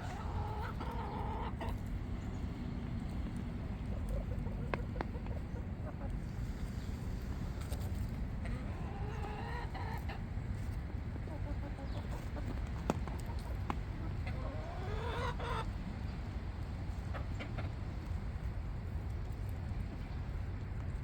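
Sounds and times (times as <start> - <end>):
drawn-out chicken call: 0.0 - 1.8, 8.4 - 10.3, 13.1 - 15.8
chickens clucking: 0.0 - 20.9
steady low rumble: 1.6 - 8.7.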